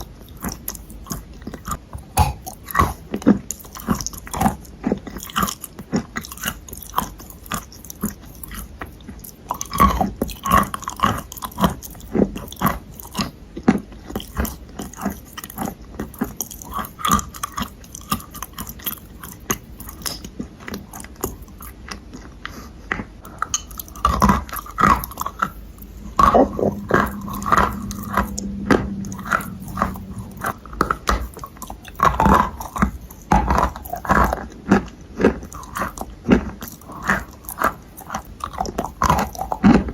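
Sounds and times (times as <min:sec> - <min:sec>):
person chewing crunchy clay: 0:00.0 - 0:39.9.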